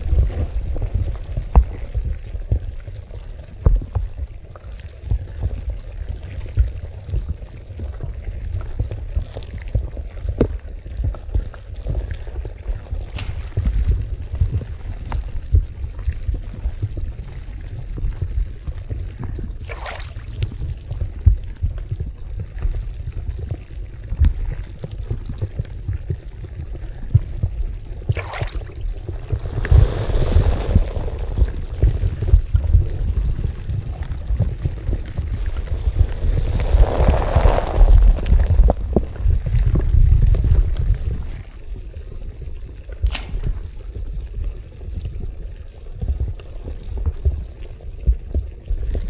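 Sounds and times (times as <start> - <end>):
water bubbling and churning: 26.7 - 45.7
sharp water splashes: 28.1 - 32.7.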